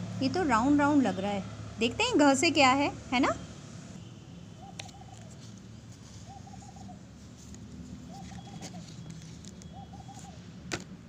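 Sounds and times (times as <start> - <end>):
bird calling soft notes: 4.6 - 5.5, 6.1 - 7.0, 8.0 - 10.4.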